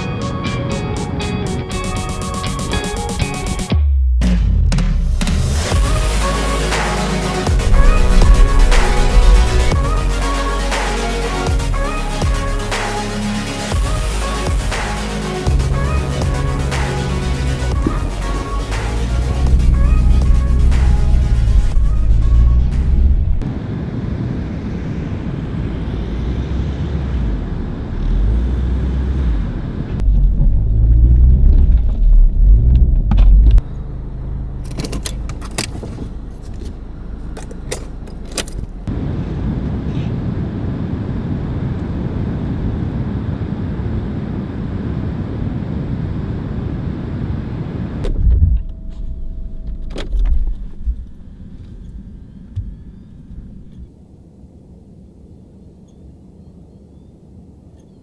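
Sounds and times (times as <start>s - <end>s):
car engine rumbling: 3.7s - 42.6s, 44.5s - 54.0s
jangling clicks: 34.5s - 38.8s.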